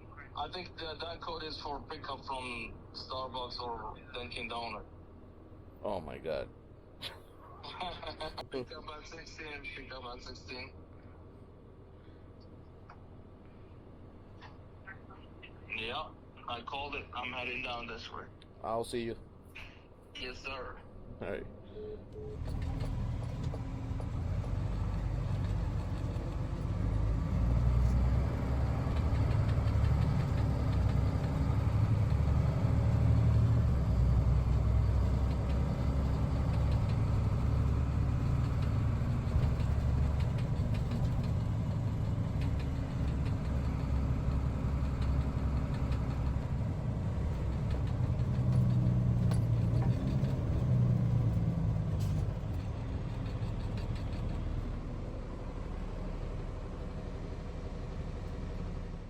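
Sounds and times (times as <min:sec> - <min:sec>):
van engine and road noise: 0:00.0 - 0:59.0.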